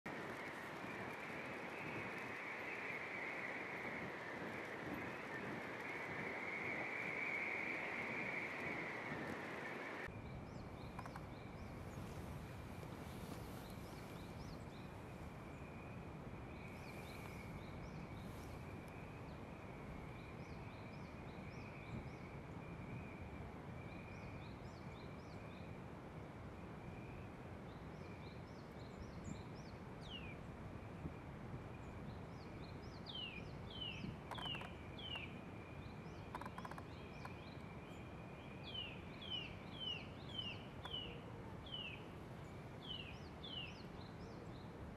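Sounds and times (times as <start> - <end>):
downward-sweeping bird calls: 0.1 - 10.1, 33.1 - 42.1
background hiss: 0.1 - 20.6
small birds chirping: 0.1 - 22.5, 31.8 - 44.8.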